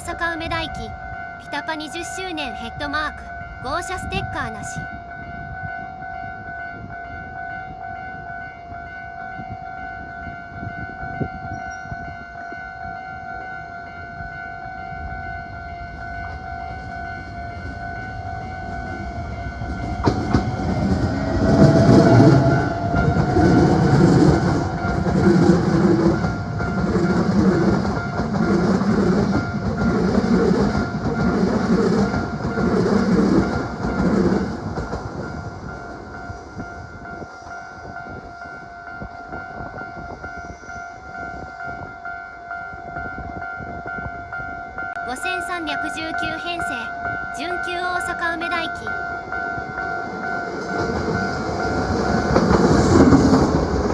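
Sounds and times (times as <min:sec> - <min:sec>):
electric train passing: 0:00.0 - 0:53.9
high warning tone: 0:00.0 - 0:53.9
wheels clattering over rail joints: 0:18.6 - 0:36.1, 0:49.2 - 0:53.9.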